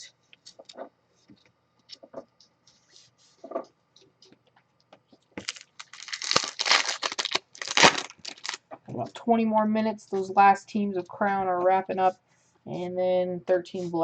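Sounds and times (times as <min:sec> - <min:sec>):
card pack wrapper tearing: 0:05.4 - 0:08.6.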